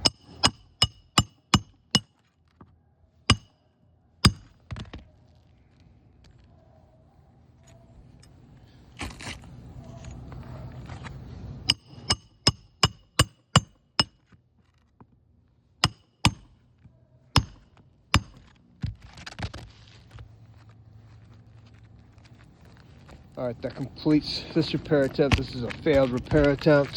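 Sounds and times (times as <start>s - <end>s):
hammer striking roofing nails: 0.0s - 2.2s, 3.3s - 3.5s, 4.2s - 4.9s, 11.7s - 14.2s, 15.8s - 16.6s, 17.4s - 18.5s
shingles scraping and rustling: 18.4s - 23.8s, 24.4s - 26.9s.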